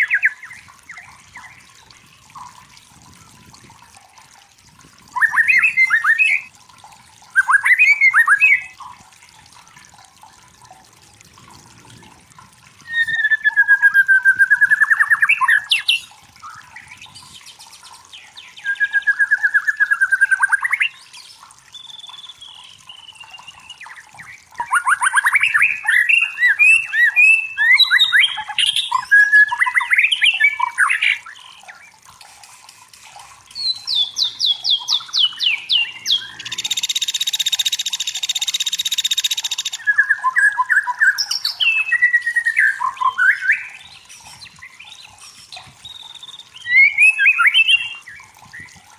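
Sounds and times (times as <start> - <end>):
bird singing whistles and trills: 0.0 - 1.8, 5.1 - 6.5, 7.3 - 8.8, 12.8 - 32.0, 33.5 - 48.8.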